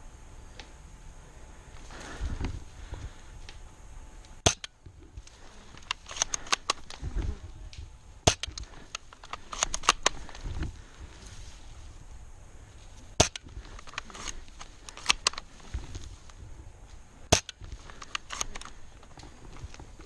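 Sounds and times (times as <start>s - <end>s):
airsoft guns firing: 4.4s - 12.3s, 13.0s - 20.0s.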